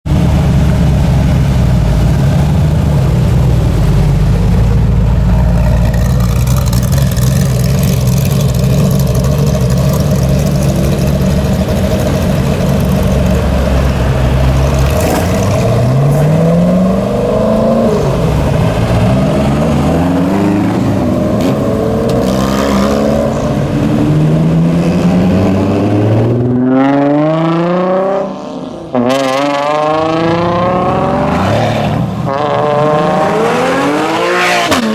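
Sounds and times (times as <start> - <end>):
car engine revving through gears: 5.8 - 34.9.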